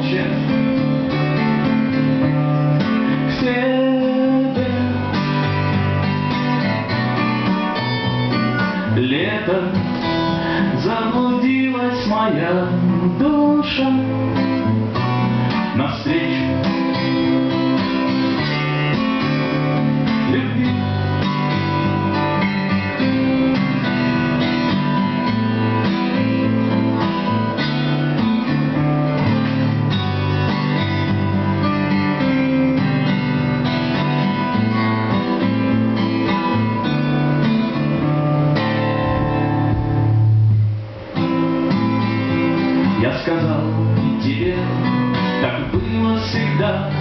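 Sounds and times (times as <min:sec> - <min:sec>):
acoustic guitars playing: 0:00.0 - 0:47.0
person singing: 0:42.3 - 0:47.0.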